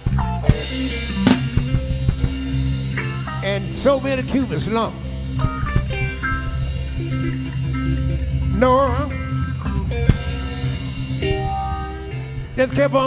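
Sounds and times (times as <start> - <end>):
bass guitar: 0.0 - 13.0
drums: 0.0 - 13.0
lead guitar run: 0.0 - 13.0
sharp drum hit: 0.1 - 3.5, 5.3 - 7.4.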